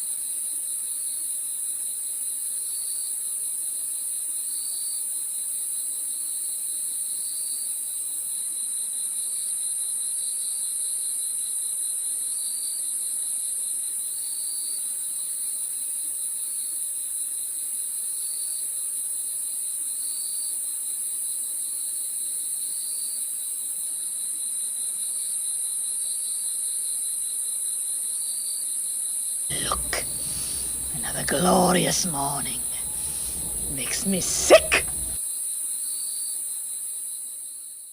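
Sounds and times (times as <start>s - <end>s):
crickets chirping: 29.5s - 35.2s.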